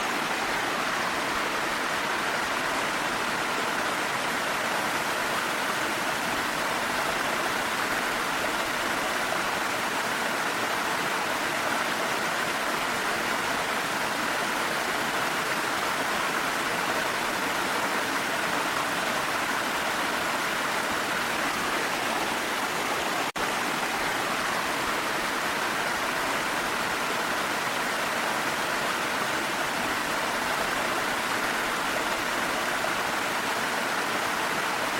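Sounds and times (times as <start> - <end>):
falling rain: 0.0 - 5.1
waterfall rushing: 0.0 - 34.9.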